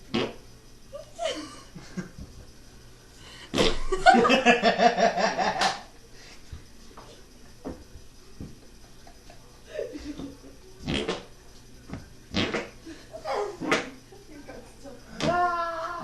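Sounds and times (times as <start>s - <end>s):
person laughing: 1.0s - 2.1s.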